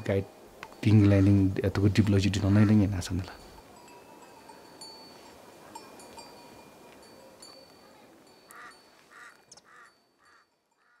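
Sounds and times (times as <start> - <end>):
bird calling: 0.9 - 1.6, 8.5 - 11.0
tinkling chime-like tones: 3.0 - 11.0.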